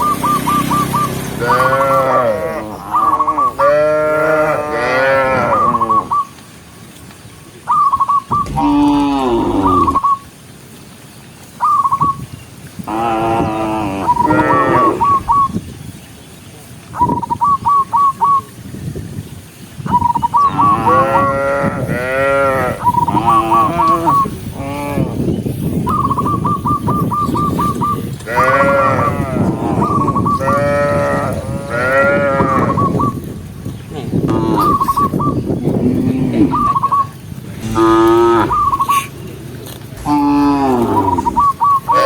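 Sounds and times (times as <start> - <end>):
cows mooing: 1.4 - 6.1, 8.4 - 10.1, 12.9 - 15.5, 20.6 - 25.3, 28.2 - 32.9, 35.6 - 42.0.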